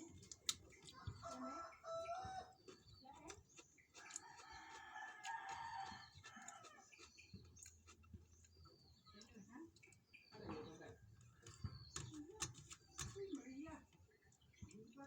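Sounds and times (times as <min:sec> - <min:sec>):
rooster crowing: 0:01.0 - 0:02.5, 0:04.2 - 0:06.8.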